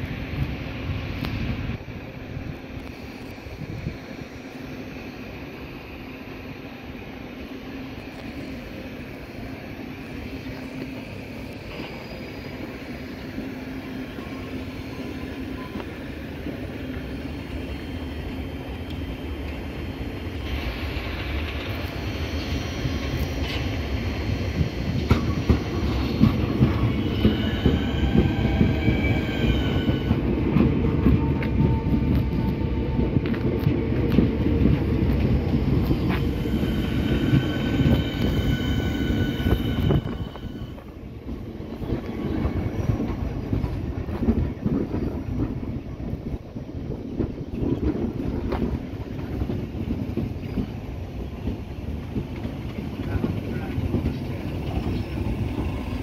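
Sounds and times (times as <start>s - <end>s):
train rumble and wheel noise: 0.0s - 56.0s
high wheel squeal: 25.2s - 30.3s, 35.9s - 40.9s.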